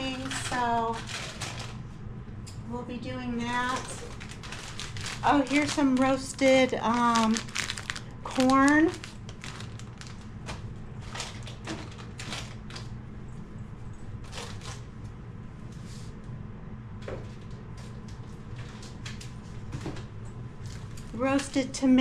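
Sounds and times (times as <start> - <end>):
plastic bags and bins rustling: 0.0 - 1.8, 3.4 - 12.9, 14.2 - 14.8
steady low hum: 0.0 - 22.0.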